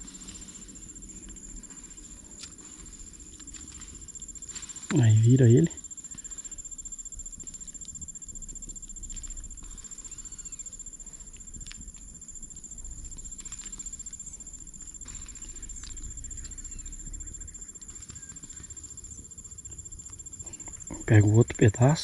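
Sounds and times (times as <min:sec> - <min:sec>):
high-pitched insect drone: 0:00.0 - 0:22.0
campfire crackling and popping: 0:06.0 - 0:16.6.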